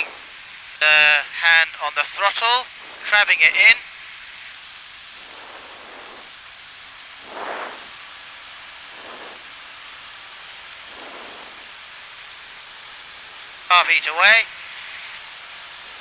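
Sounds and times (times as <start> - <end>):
airplane cockpit noise: 1.1 - 3.8, 5.2 - 6.4, 8.9 - 9.5, 10.9 - 11.7
soft whooshing: 2.7 - 3.7, 5.0 - 8.1, 8.9 - 9.7, 10.7 - 11.9.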